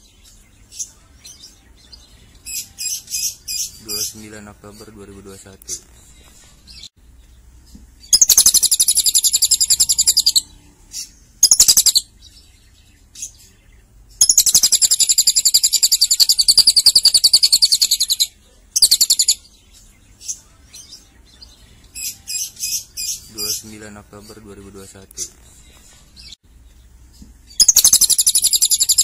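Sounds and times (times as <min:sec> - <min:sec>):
lovebird chattering trills: 0:08.0 - 0:12.1, 0:14.2 - 0:19.4, 0:27.5 - 0:29.0.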